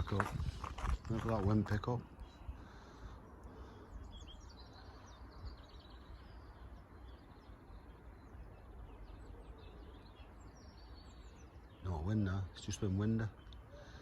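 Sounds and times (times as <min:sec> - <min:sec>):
wind rumble on microphone: 0:00.0 - 0:02.6
small birds chirping: 0:00.0 - 0:14.0.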